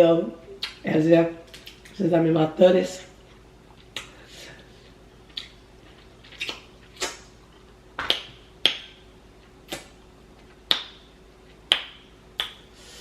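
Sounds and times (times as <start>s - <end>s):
mouth smacks while chewing: 3.3s - 4.2s, 4.8s - 7.3s.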